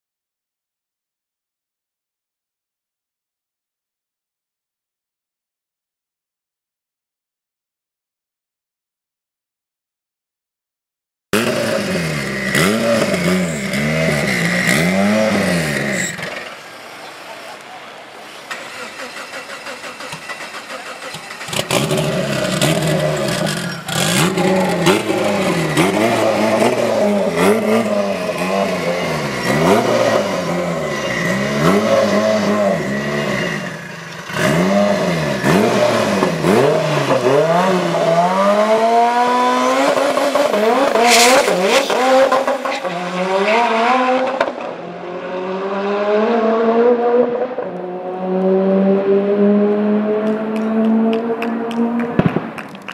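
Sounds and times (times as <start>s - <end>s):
car engine revving: 11.4s - 17.0s, 18.1s - 52.9s
car accelerating through gears: 21.0s - 52.6s.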